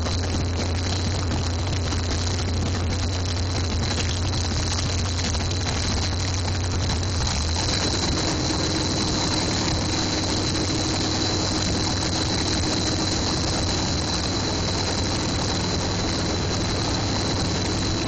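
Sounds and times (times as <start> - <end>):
race car engine idling: 0.0 - 18.0.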